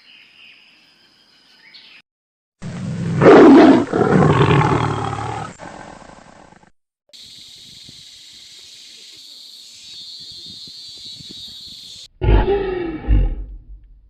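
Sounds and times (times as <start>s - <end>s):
loud animal call: 12.2s - 13.4s.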